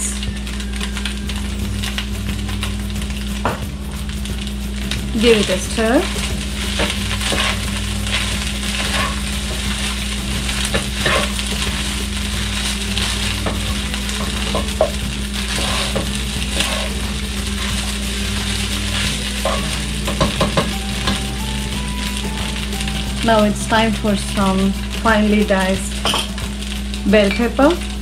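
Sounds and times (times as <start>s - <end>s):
rice sizzling in a pan: 0.0s - 28.0s
steady low hum: 0.0s - 28.0s
spatula scraping a pan: 6.0s - 20.7s.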